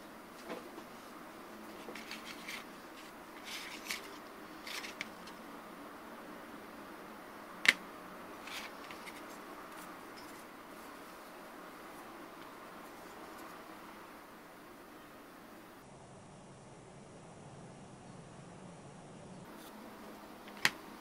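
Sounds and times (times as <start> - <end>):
scraping and rubbing handling: 0.3 - 5.4, 7.6 - 13.9.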